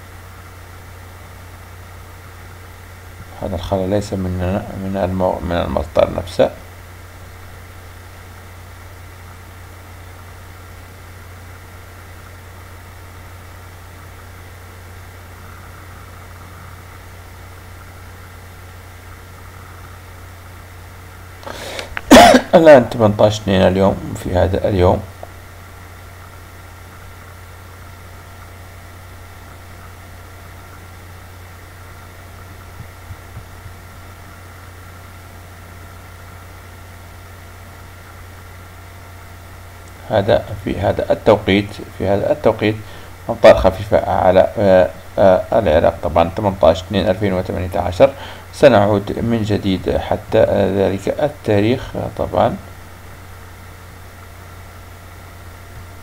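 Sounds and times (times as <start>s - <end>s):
faint hiss: 0.0s - 56.0s
low hum: 0.0s - 56.0s.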